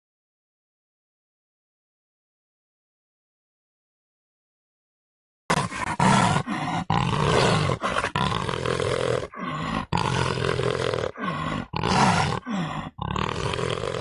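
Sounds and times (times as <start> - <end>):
animal roars: 5.5 - 14.0.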